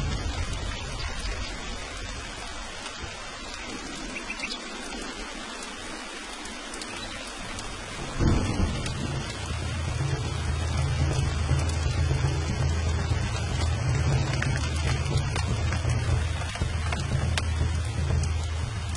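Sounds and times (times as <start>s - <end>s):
low rumble: 0.0s - 3.3s, 7.8s - 18.9s
steady rain falling: 0.0s - 18.9s.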